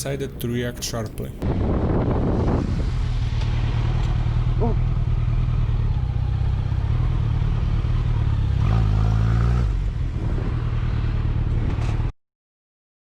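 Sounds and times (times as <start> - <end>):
wind rumble: 0.0 - 7.9, 9.7 - 12.1
motorcycle engine running: 3.6 - 11.4.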